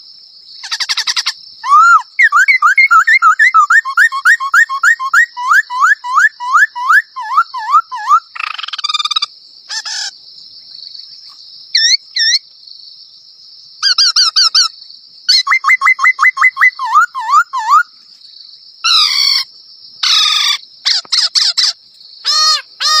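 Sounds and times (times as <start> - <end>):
songbird whistling upward notes: 1.6 - 9.3, 15.3 - 17.9.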